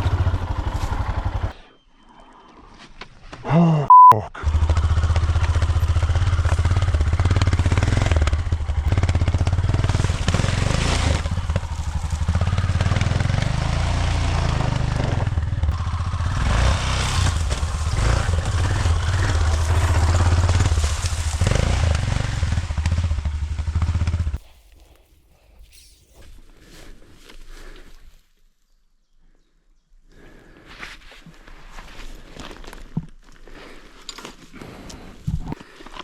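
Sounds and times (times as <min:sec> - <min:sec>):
dirt bike engine revving: 0:04.4 - 0:24.4.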